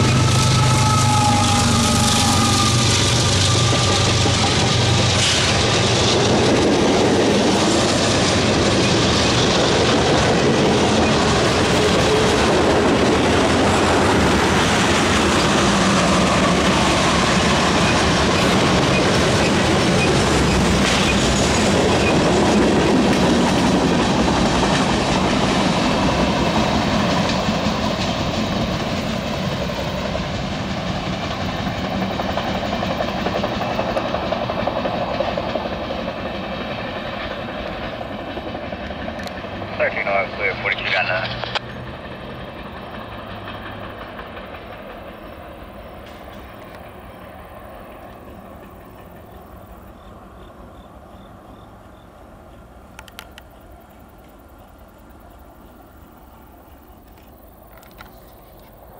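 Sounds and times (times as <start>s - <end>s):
freight train wheels clattering: 0.0s - 39.8s, 41.3s - 50.2s.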